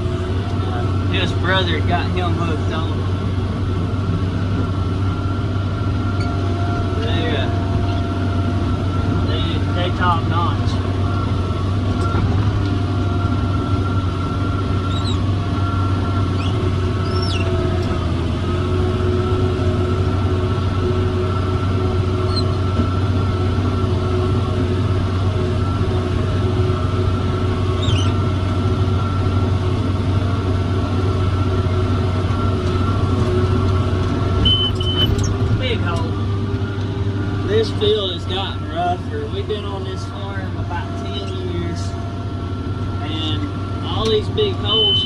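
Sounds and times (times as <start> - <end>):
steady machine whine: 0.0 - 45.0
tractor diesel engine droning: 0.0 - 45.0
faint high squeaks: 34.4 - 35.4.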